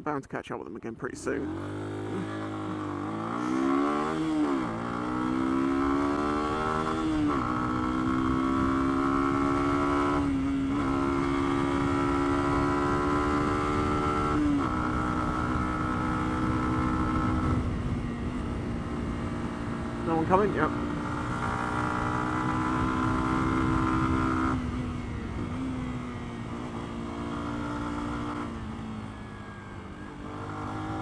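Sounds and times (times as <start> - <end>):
motorcycle engine accelerating: 1.3 - 31.0
wind noise: 14.2 - 20.0.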